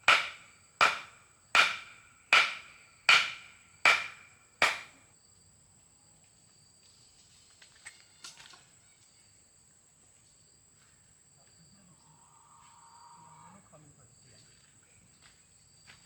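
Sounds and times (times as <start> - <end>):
sharp knock: 0.0 - 5.0.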